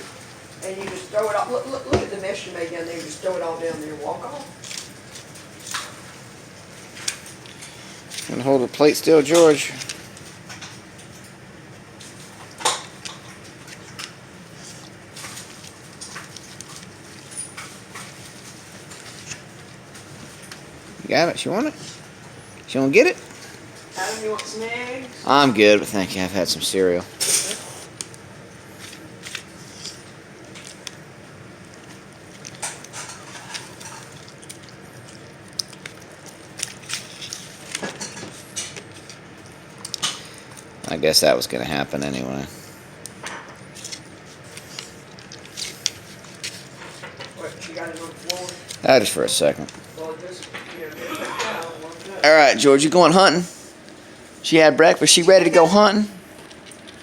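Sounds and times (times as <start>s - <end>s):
dog chewing and licking: 27.4s - 40.7s, 43.1s - 50.7s.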